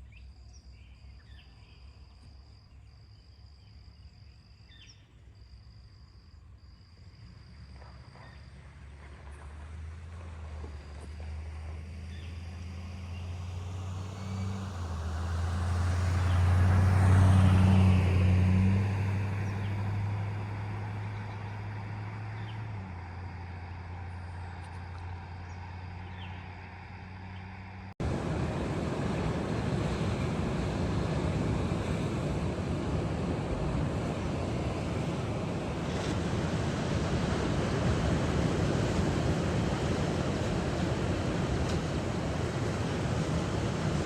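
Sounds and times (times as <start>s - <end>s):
passing engine hum: 7.0s - 44.0s
surf or wind rushing: 28.0s - 44.0s.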